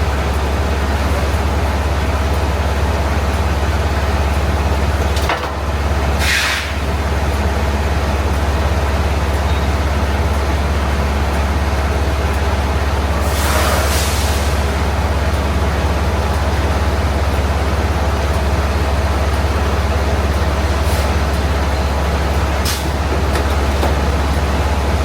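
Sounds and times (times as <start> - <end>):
diesel truck engine droning: 0.0 - 25.0
air hiss: 6.2 - 6.8, 13.2 - 14.7.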